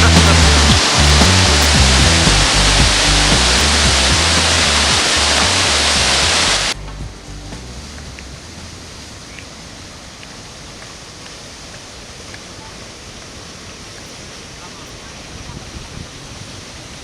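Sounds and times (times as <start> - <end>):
music: 0.0 - 8.7
waterfall rushing: 0.0 - 17.0.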